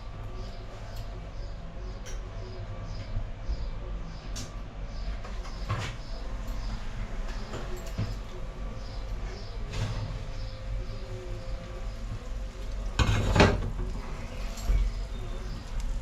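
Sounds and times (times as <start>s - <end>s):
steady low hum: 0.0s - 16.0s
oven door opening: 12.2s - 16.0s.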